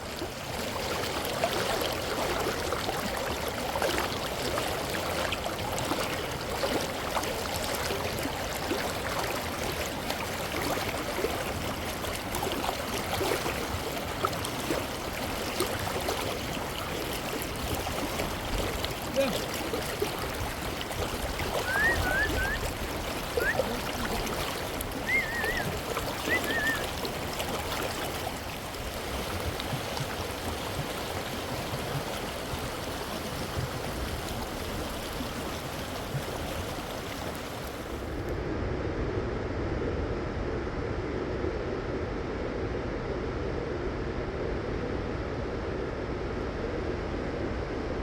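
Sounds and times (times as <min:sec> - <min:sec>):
rushing river water: 0:00.0 - 0:38.3.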